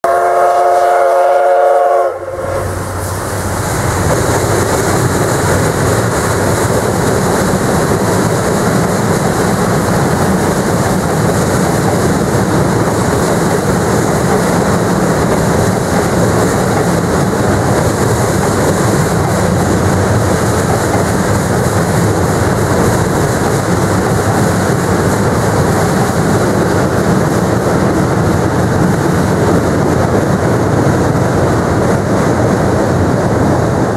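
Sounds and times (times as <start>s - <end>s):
steam locomotive whistle: 0.0s - 3.0s
train wheels rumbling on a bridge: 0.0s - 33.9s.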